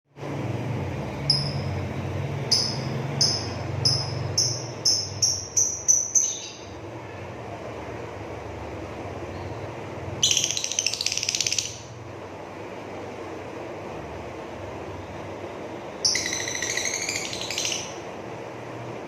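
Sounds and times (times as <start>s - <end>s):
low background hum: 0.1s - 19.0s
lovebird rattling trill: 1.3s - 1.8s, 2.5s - 6.6s, 10.2s - 11.9s, 16.0s - 18.0s
shrill bird call: 16.0s - 18.0s.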